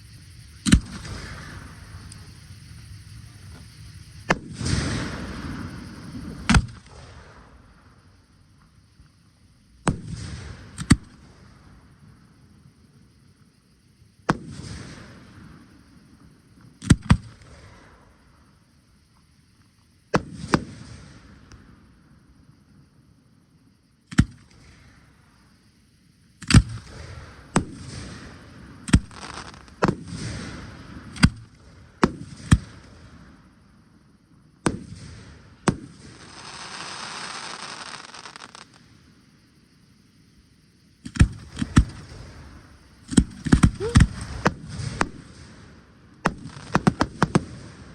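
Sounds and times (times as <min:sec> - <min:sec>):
fireworks hiss: 0:00.0 - 0:08.0, 0:26.4 - 0:33.4, 0:34.6 - 0:47.9
fireworks bangs with echo: 0:34.6 - 0:38.8, 0:41.1 - 0:47.9.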